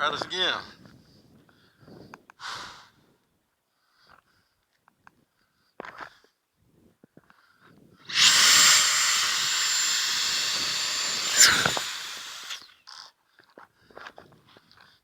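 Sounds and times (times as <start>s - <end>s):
model plane crash impact: 8.1s - 12.6s.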